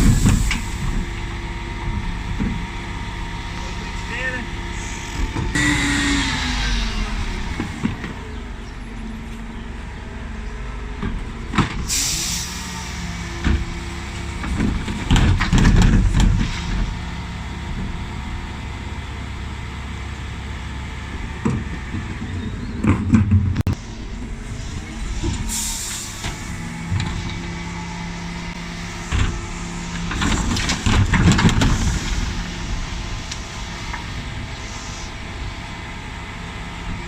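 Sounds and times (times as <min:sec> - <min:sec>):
lorry engine running: 0:00.0 - 0:37.0
bins clanking and banging: 0:14.3 - 0:16.9, 0:30.0 - 0:32.4.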